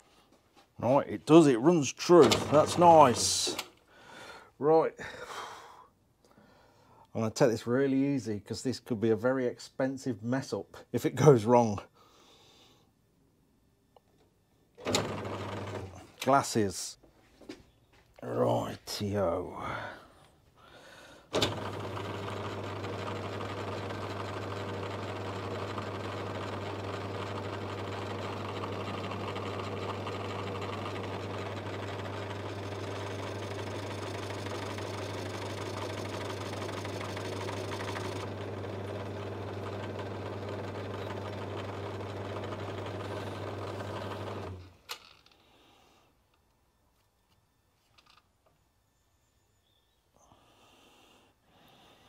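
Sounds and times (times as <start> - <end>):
lathe motor humming: 2.2 - 3.5, 14.8 - 15.9, 21.4 - 44.7.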